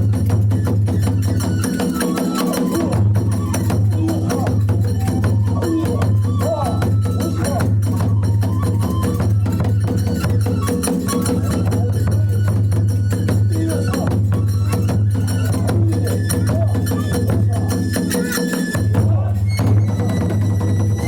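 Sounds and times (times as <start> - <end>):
drum beaten fast: 0.0 - 21.0
hand cymbals clashing: 9.4 - 21.0.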